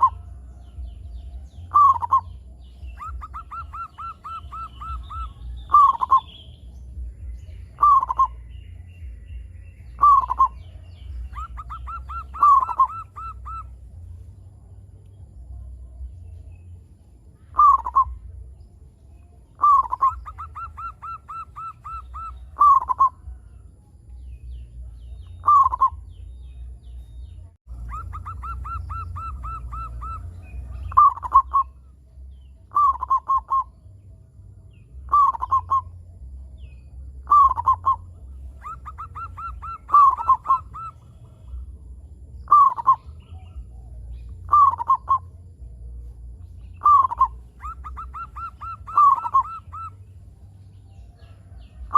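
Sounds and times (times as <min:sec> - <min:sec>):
dove cooing: 0:00.0 - 0:06.4, 0:07.7 - 0:08.5, 0:10.0 - 0:13.9, 0:17.5 - 0:18.4, 0:19.6 - 0:23.4, 0:25.2 - 0:26.1, 0:27.7 - 0:31.9, 0:32.7 - 0:33.8, 0:35.0 - 0:36.2, 0:37.2 - 0:41.8, 0:42.4 - 0:45.4, 0:46.7 - 0:50.1
steady low hum: 0:00.0 - 0:51.9.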